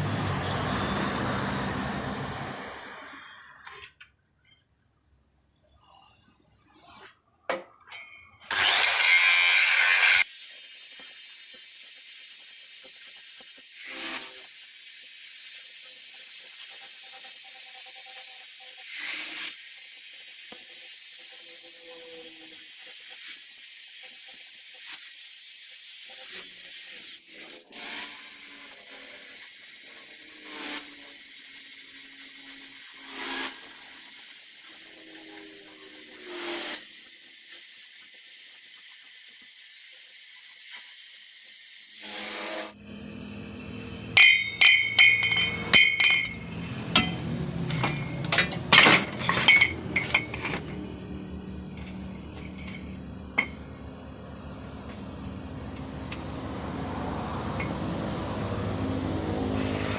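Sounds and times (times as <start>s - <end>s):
metal clinks and taps: 44.2s - 48.6s.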